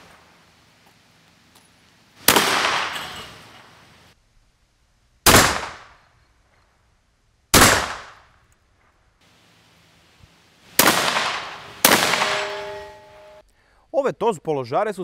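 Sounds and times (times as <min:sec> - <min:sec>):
shotgun blasts echoing: 0:02.2 - 0:03.2, 0:05.3 - 0:06.1, 0:07.5 - 0:08.3, 0:10.8 - 0:12.9.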